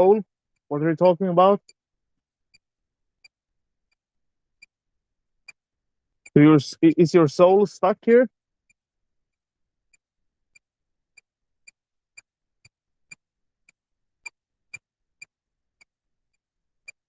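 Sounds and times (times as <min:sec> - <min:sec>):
faint electronic ticking: 0:02.4 - 0:04.8, 0:05.4 - 0:07.0, 0:09.8 - 0:16.0, 0:16.8 - 0:17.0.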